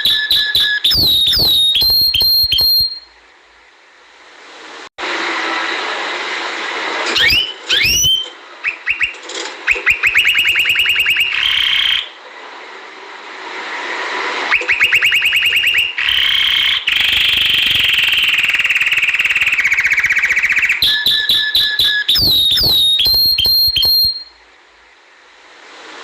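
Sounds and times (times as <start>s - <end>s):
canary singing: 0.0s - 3.1s, 7.2s - 12.2s, 14.5s - 24.3s.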